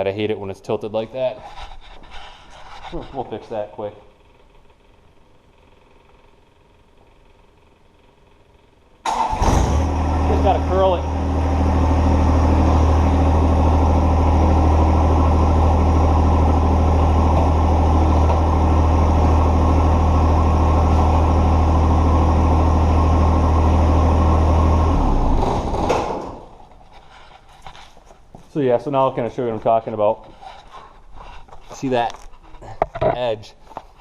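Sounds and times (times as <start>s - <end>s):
tractor diesel engine running: 9.1s - 26.6s.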